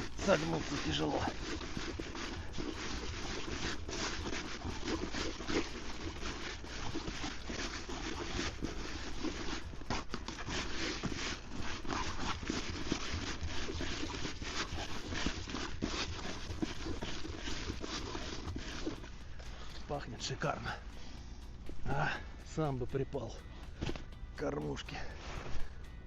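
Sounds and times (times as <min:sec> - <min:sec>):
hands rustling damp bait: 0:00.0 - 0:19.9.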